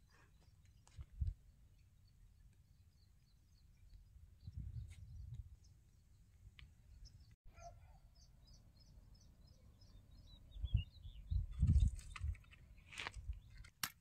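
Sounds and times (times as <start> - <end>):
small birds chirping: 0.0 - 13.7
wind rumble on microphone: 1.0 - 1.4, 4.2 - 5.8, 10.4 - 12.5.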